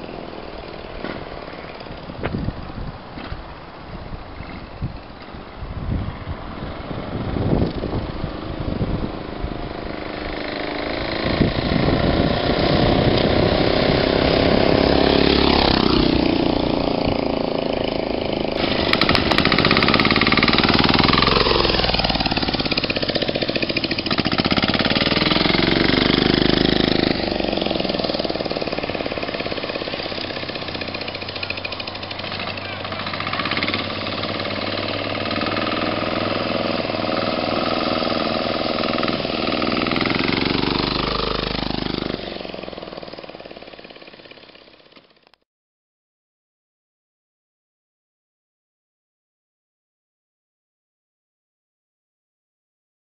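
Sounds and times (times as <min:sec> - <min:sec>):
diesel engine revving: 0:08.0 - 0:43.4.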